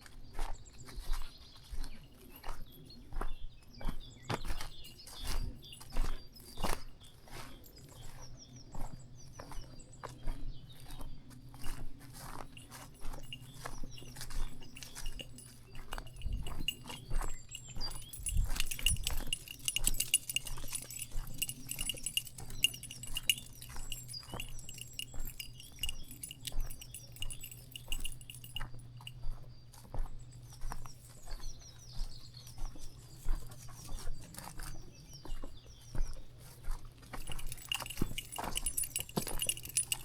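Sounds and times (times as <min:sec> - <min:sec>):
small birds chirping: 0:00.5 - 0:40.0
footsteps on dirt path: 0:08.8 - 0:40.0.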